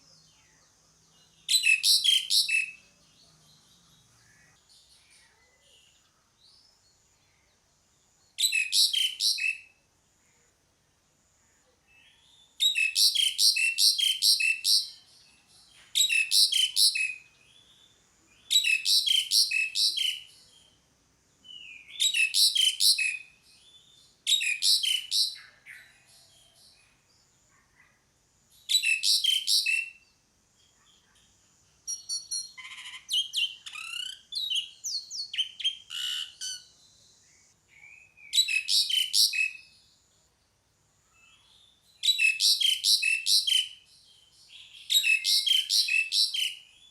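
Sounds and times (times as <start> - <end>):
bird whistles and chatter: 1.5 - 2.8, 8.4 - 9.7, 12.6 - 15.1, 16.0 - 17.2, 18.5 - 20.4, 21.6 - 23.4, 24.3 - 26.1, 28.7 - 30.0, 31.9 - 36.8, 37.7 - 39.7, 42.0 - 43.8, 44.8 - 46.9
starling calling: 1.5 - 2.8, 31.9 - 39.6.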